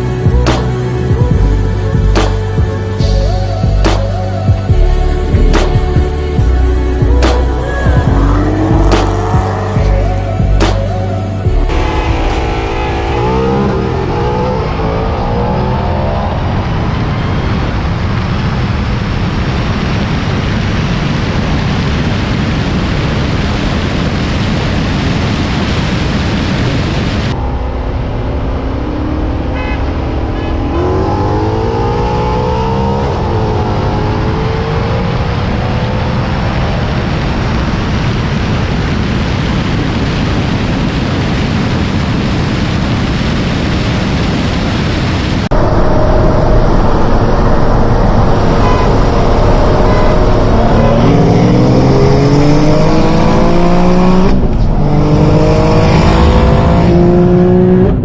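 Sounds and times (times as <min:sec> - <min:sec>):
car engine accelerating hard: 0:04.7 - 0:25.1, 0:26.7 - 0:39.0, 0:45.3 - 0:58.0
wind noise rushing: 0:04.8 - 0:58.0.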